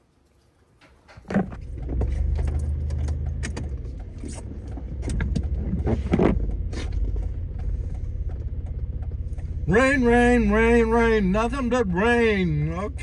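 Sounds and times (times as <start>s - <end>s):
scattered clicks and knocks: 0.8s - 10.5s
car engine and road noise: 1.1s - 13.0s.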